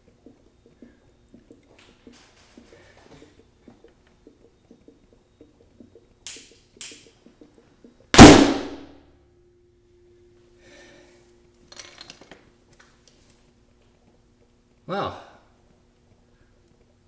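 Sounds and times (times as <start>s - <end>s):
loud sharp blast: 8.2s - 8.9s.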